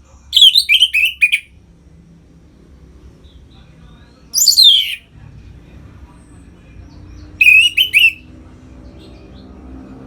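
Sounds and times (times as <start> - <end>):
thrush singing whistled notes: 0.4 - 1.5, 4.4 - 5.1, 7.4 - 8.3.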